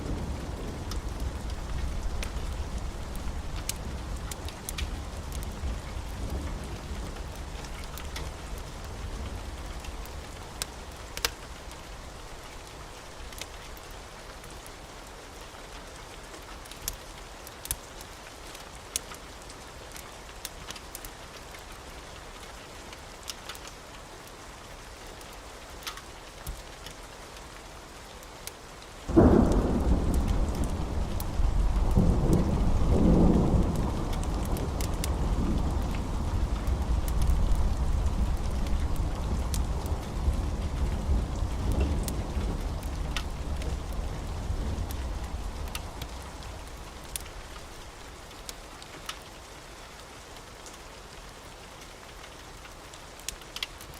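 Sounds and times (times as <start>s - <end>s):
thunderclap rumbling: 0.0s - 10.2s, 29.1s - 47.9s
steady rain: 0.0s - 53.9s.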